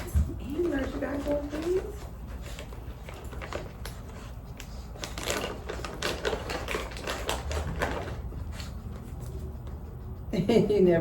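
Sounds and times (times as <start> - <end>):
packaging crinkling and crackling: 2.6 - 8.3.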